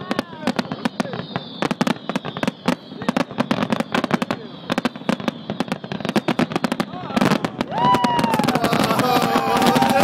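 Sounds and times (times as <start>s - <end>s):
fireworks bangs and crackles: 0.0s - 10.0s
people whooping: 6.0s - 10.0s.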